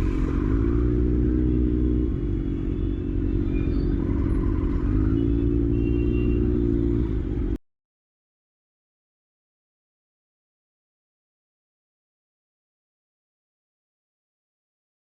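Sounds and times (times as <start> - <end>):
motorcycle engine revving: 0.0 - 7.5.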